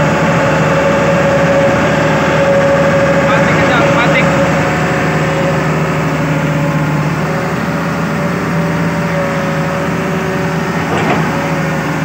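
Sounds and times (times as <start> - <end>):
high steady whine: 0.0 - 8.2
excavator diesel engine running: 0.0 - 12.0.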